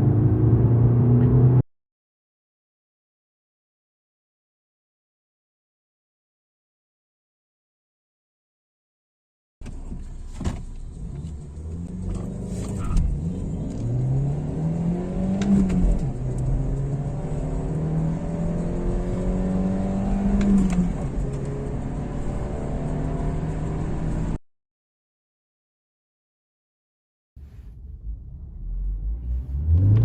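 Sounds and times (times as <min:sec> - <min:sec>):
car accelerating through gears: 0:11.1 - 0:24.4, 0:28.6 - 0:30.0.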